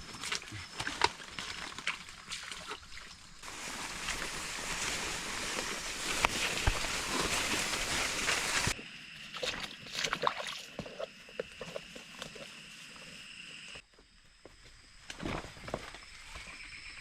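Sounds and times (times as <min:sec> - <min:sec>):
wind hiss: 0:03.4 - 0:08.8.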